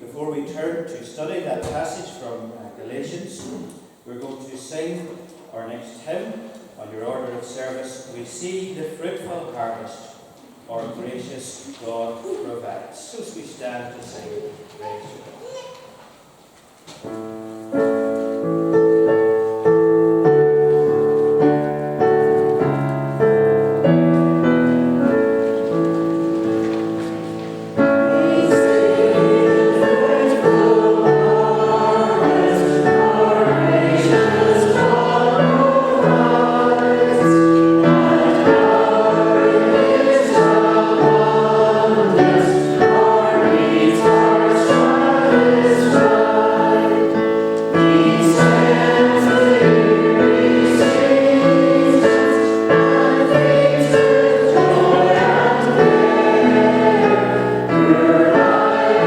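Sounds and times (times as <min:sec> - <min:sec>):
congregation singing a hymn: 0:17.1 - 0:59.0
keyboard: 0:17.1 - 0:59.0.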